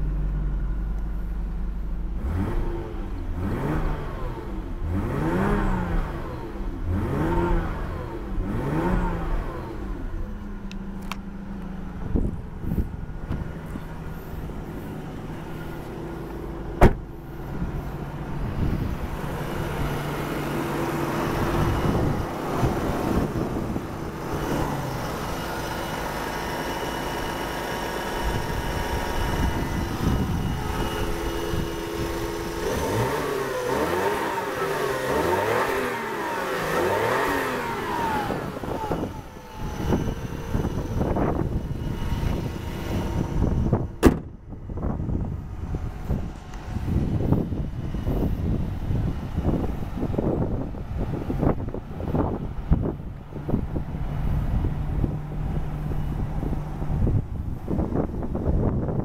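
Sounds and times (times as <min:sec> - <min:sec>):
car engine idling and revving: 0:00.0 - 0:59.0
sharp knock: 0:44.0 - 0:44.3.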